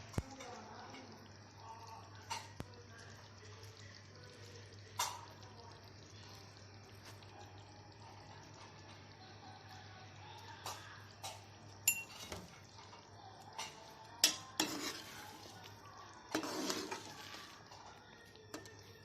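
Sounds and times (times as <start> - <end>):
cutlery clinking on cookware: 10.7 - 12.5, 13.6 - 15.2.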